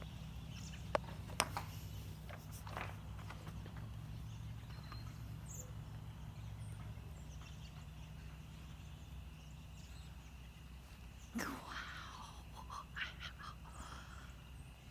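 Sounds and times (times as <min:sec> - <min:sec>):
flock of birds chattering: 0:00.0 - 0:14.9
low steady hum: 0:00.0 - 0:14.9.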